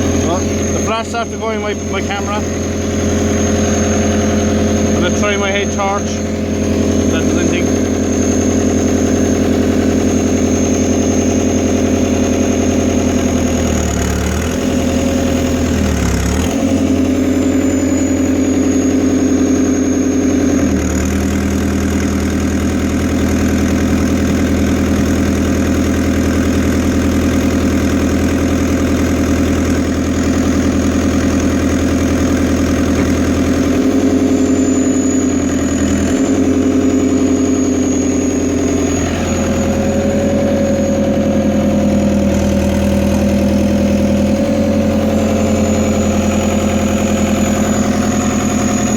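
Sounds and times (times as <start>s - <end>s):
high whine: 0.0s - 13.5s, 32.3s - 48.9s
excavator diesel engine running: 0.0s - 48.9s.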